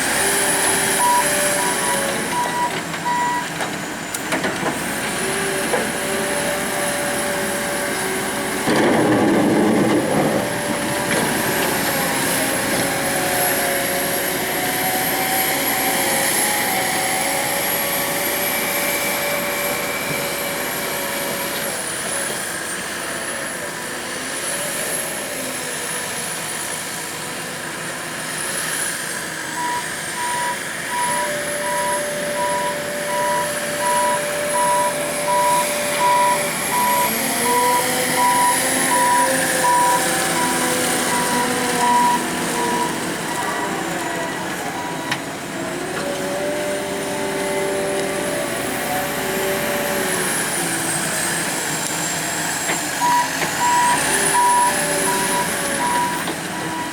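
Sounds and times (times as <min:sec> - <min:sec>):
truck reversing alarm beeping: 0:00.0 - 0:03.6, 0:29.4 - 0:46.5, 0:47.3 - 0:56.9.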